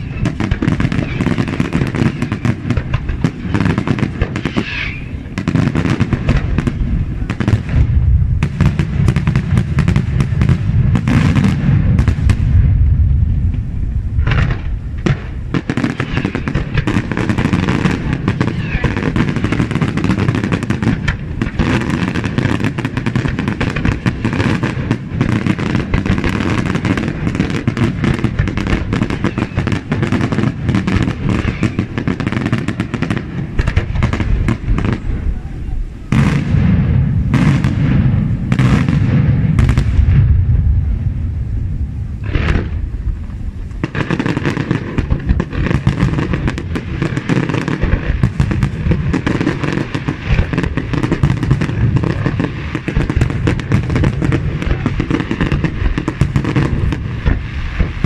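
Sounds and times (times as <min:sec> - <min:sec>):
fireworks bursts and crackling: 0:00.0 - 0:58.0
low firework booms: 0:00.0 - 0:58.0.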